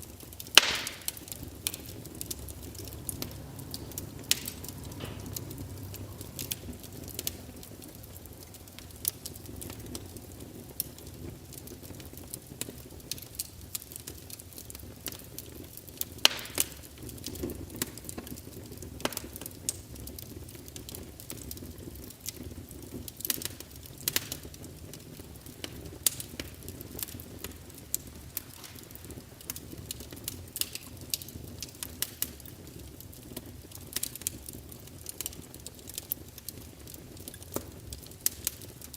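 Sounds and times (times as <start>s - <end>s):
fire crackling and popping: 0.0s - 38.9s.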